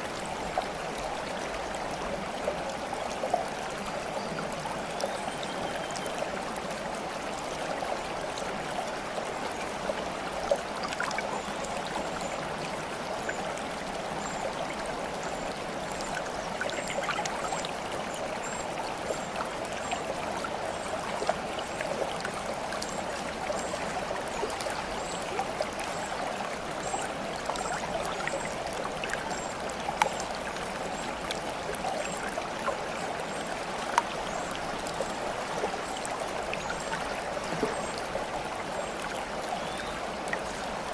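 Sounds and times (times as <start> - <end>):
small splashes and drips: 9.2 - 40.9.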